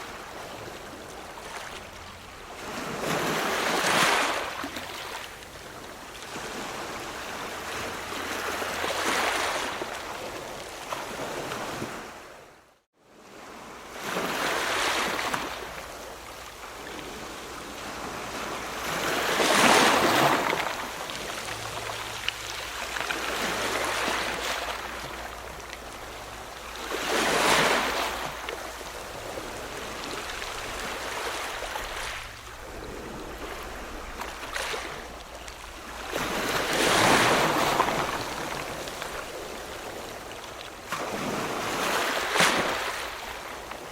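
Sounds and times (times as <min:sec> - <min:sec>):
ocean waves breaking: 0:00.0 - 0:43.9
wash of surf: 0:13.3 - 0:43.9.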